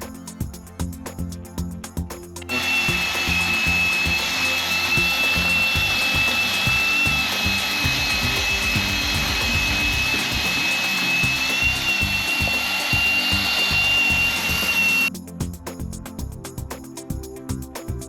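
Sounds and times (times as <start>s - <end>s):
background music with beat: 0.0s - 18.0s
power tool whining: 2.5s - 15.1s.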